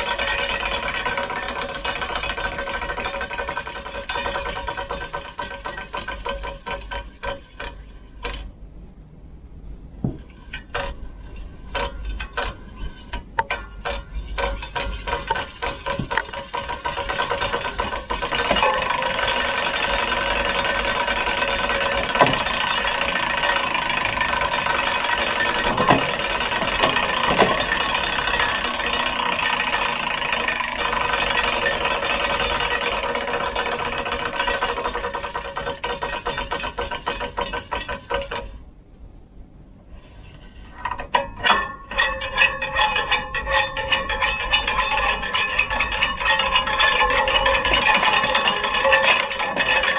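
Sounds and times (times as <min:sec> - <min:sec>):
bicycle running noise: 0:00.0 - 0:07.9, 0:11.2 - 0:38.6, 0:43.4 - 0:49.9
bicycle rattling and clicking: 0:00.0 - 0:08.4, 0:10.5 - 0:38.6, 0:40.8 - 0:49.9
bicycle knocks: 0:10.0 - 0:11.0, 0:13.3 - 0:38.5.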